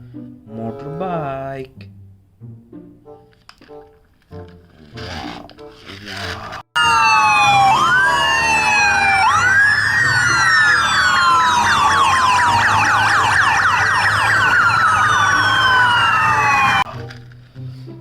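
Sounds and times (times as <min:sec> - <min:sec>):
yelping siren: 0:06.8 - 0:16.9
wailing emergency sirens: 0:06.8 - 0:17.0.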